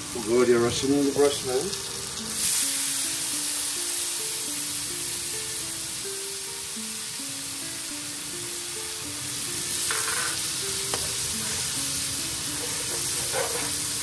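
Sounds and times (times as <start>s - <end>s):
onions sizzling in oil: 0.0s - 14.0s
soft background music: 0.0s - 14.0s
metal spoon scraping pan: 12.5s - 13.8s.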